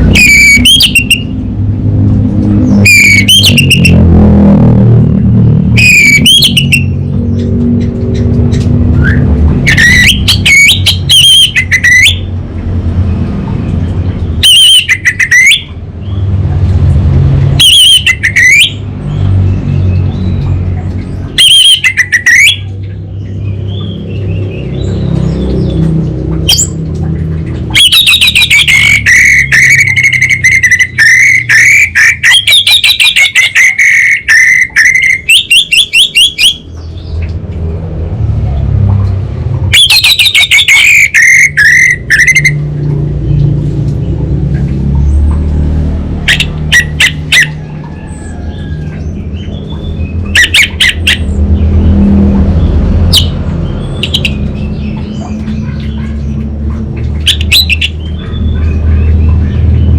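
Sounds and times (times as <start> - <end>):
steady low rumble: 0.8 - 21.4.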